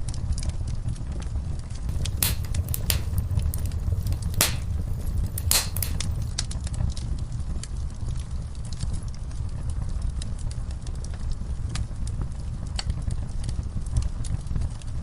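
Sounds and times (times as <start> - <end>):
sharp pops from burning wood: 1.9 - 6.4
wood fire crackling: 1.9 - 6.5.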